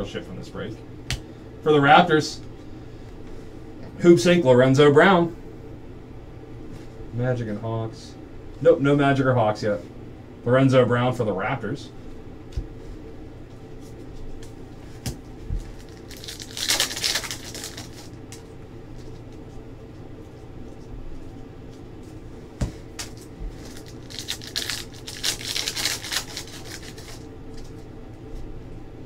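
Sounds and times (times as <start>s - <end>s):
steady low hum: 0.0s - 29.0s
cards being handled: 13.8s - 19.6s, 22.6s - 27.9s
card pack wrappers crinkling and tearing: 15.6s - 19.4s, 22.9s - 27.8s.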